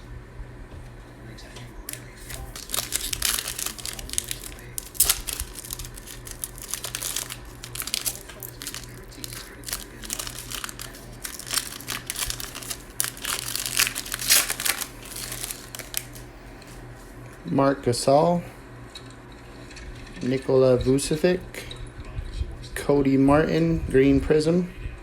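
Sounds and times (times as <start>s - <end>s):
foil wrapper crinkling: 1.8s - 16.3s.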